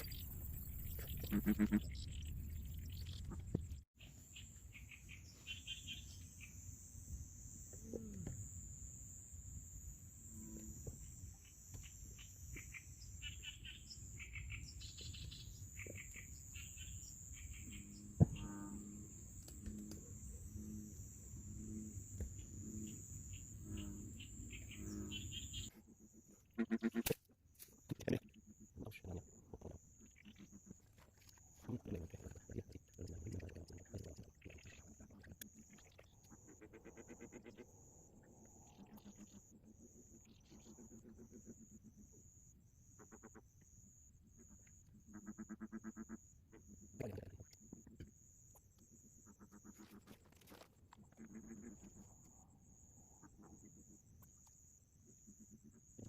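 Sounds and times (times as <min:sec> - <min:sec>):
low pitched animal calls: 0:00.0 - 0:03.6, 0:10.4 - 0:27.2, 0:28.0 - 0:42.3
high-pitched insect drone: 0:05.4 - 0:25.7
chirping calls: 0:22.4 - 0:27.1.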